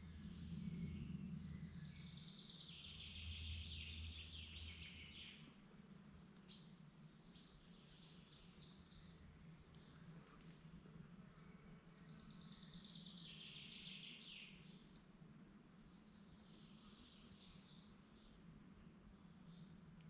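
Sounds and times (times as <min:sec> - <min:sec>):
faint low rumble: 0:00.0 - 0:08.1
songbird singing: 0:00.0 - 0:15.1, 0:15.8 - 0:20.0.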